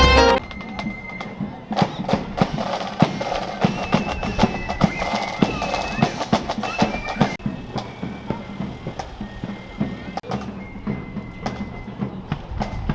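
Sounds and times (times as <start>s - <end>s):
crowd voices: 0.0s - 0.4s
drum strikes: 0.0s - 0.4s
shrill flute notes: 0.0s - 0.4s.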